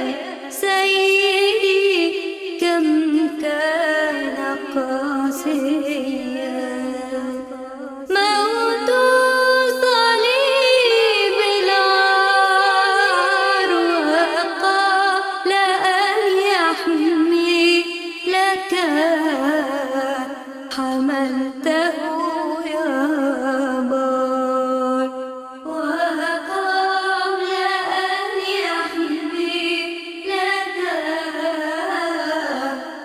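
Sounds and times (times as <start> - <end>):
person singing a hymn melody: 8.1 - 17.2.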